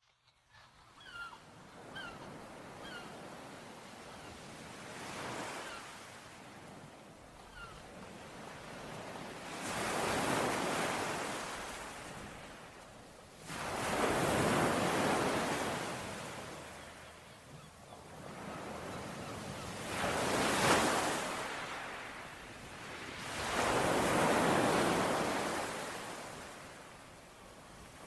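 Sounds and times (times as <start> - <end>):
faint bird chirp: 0.1 - 3.2, 7.4 - 7.9, 16.6 - 19.8
ocean waves washing ashore: 1.1 - 28.0.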